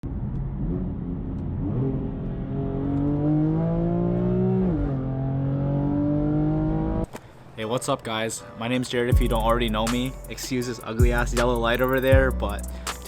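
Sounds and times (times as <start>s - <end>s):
car engine accelerating: 0.0s - 7.1s.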